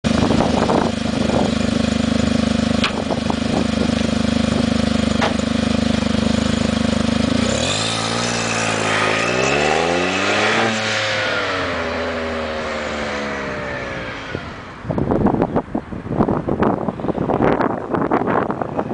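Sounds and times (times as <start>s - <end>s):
small car engine revving: 0.1s - 15.1s.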